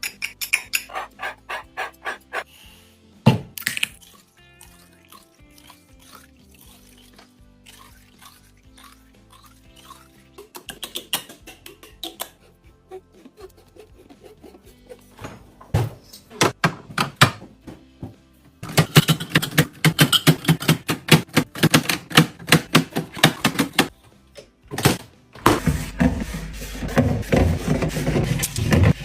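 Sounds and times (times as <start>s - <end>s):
background music: 0.0s - 29.0s
packages clicking and tapping: 18.6s - 23.9s.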